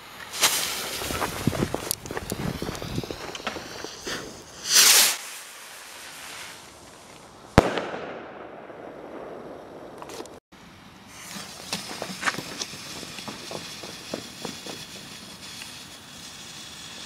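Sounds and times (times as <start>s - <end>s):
firework rocket whoosh: 0.0s - 8.4s, 11.1s - 17.0s
firework bang: 7.6s - 10.1s.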